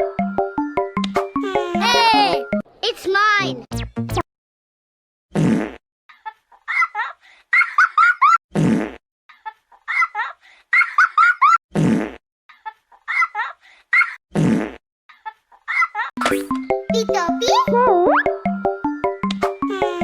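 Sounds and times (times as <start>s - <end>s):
cartoon fart sound: 5.3s - 5.8s, 8.5s - 9.0s, 11.7s - 12.2s, 14.3s - 14.8s.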